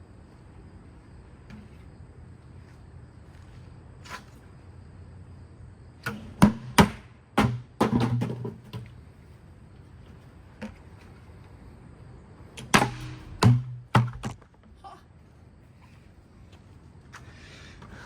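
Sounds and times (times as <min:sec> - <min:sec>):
ceiling fan struck with metallic ring: 0:12.8 - 0:13.8.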